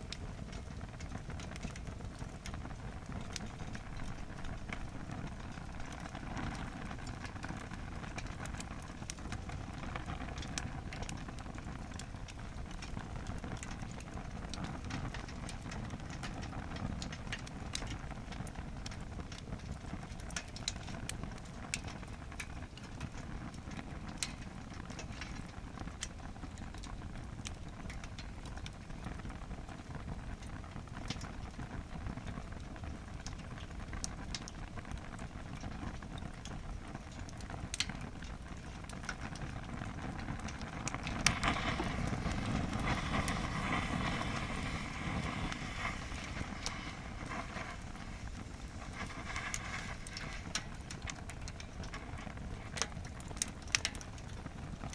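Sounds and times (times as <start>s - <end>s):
campfire crackling and popping: 0.0s - 54.9s
rushing hiss: 41.3s - 50.5s.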